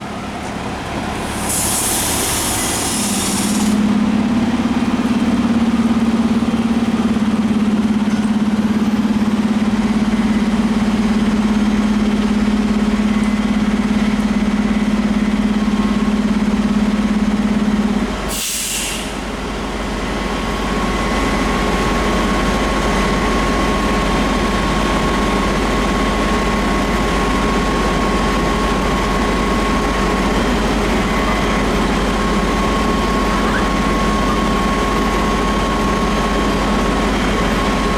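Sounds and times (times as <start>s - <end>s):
diesel engines running: 0.0s - 37.9s
air brake hisses: 1.2s - 3.8s, 18.3s - 19.3s.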